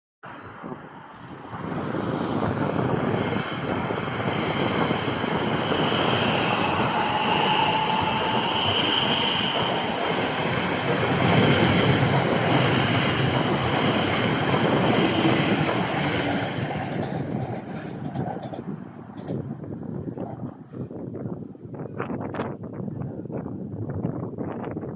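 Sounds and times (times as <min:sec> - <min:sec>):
train wheels rumbling on rails: 0:01.4 - 0:21.0
high wheel squeal: 0:03.0 - 0:18.0.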